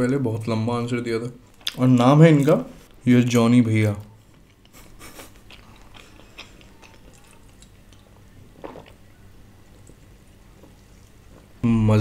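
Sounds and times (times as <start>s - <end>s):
person chewing food: 4.2s - 11.6s.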